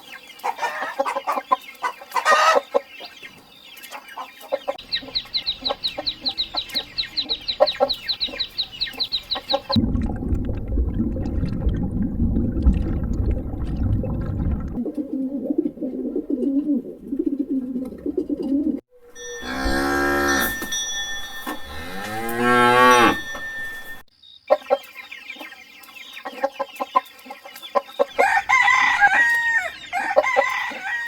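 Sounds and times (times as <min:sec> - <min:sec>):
cattle mooing: 0:19.3 - 0:20.6, 0:21.7 - 0:23.5.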